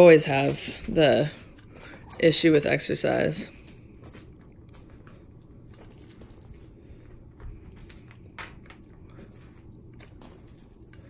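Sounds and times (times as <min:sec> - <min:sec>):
high jingling: 0:00.0 - 0:08.0.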